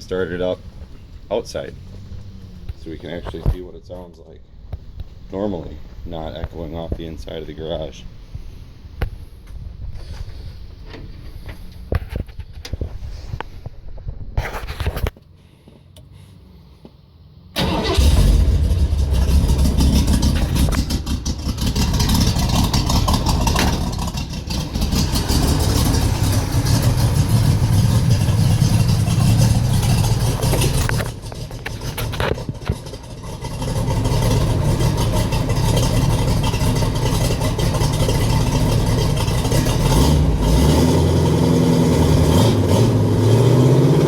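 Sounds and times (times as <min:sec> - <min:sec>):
truck engine starting and running loud: 0:00.0 - 0:07.5, 0:17.5 - 0:44.0.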